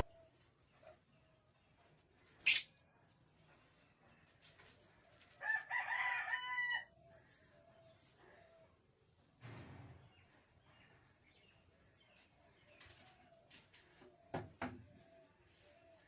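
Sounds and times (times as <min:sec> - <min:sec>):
sharp click: 0:02.4 - 0:02.7
rooster crowing: 0:05.4 - 0:07.0.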